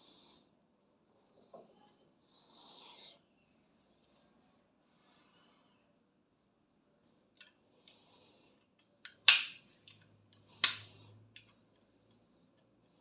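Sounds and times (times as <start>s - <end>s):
hand tool sharp snaps: 9.0s - 9.6s, 10.6s - 11.5s.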